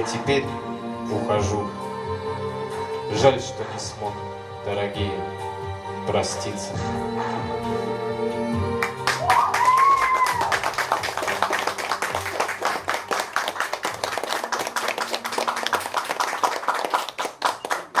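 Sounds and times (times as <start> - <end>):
audience applauding: 8.8 - 18.0
person cheering: 9.1 - 10.9.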